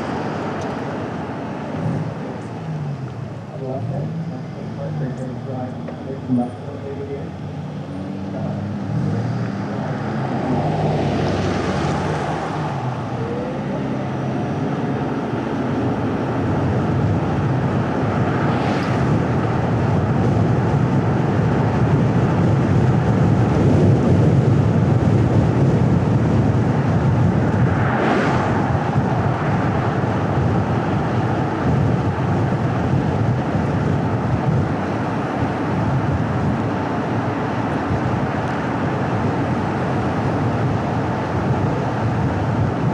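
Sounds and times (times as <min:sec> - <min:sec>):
car tyre and engine noise: 0:00.0 - 0:42.9
wind: 0:00.0 - 0:42.9.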